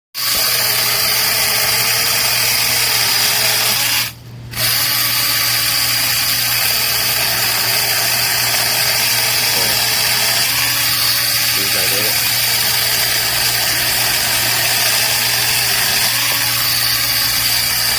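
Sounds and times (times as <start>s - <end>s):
electric chainsaw running: 0.2s - 17.9s.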